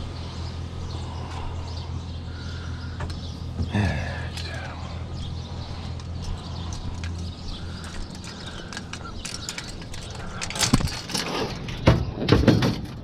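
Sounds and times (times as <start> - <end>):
low steady hum: 0.0 - 12.2
clicks and rattles of handling: 6.0 - 13.0.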